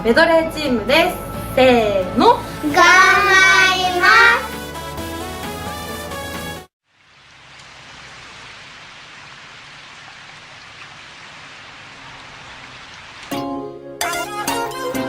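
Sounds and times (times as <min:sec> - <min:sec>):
music: 0:00.0 - 0:06.7, 0:13.3 - 0:15.0
rain-like hiss: 0:02.5 - 0:13.4.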